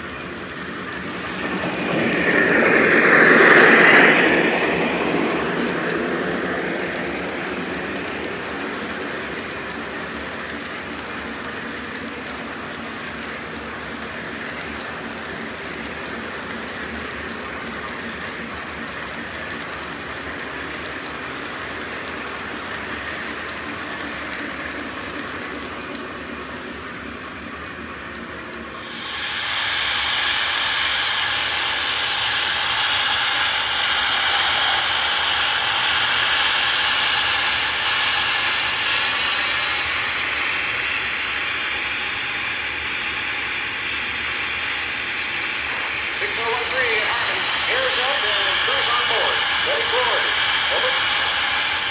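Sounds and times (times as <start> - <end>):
model train rumbling on track: 0.0 - 51.9
loud hiss: 45.4 - 51.9.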